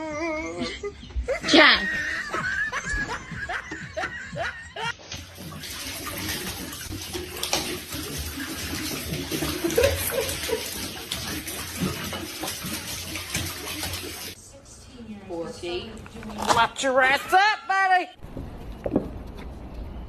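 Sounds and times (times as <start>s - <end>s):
rushing water: 5.1s - 14.4s.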